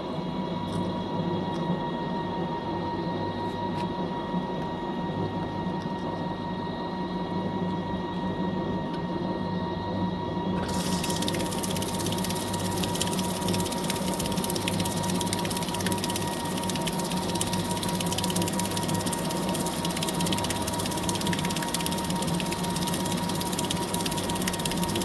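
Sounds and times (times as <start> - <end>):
washing machine motor hum: 6.5 - 25.0.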